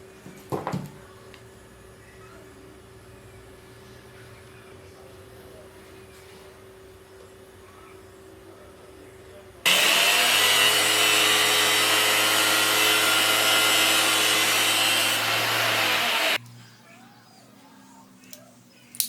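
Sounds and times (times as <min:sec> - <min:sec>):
small electric motor whining: 0:09.7 - 0:16.4.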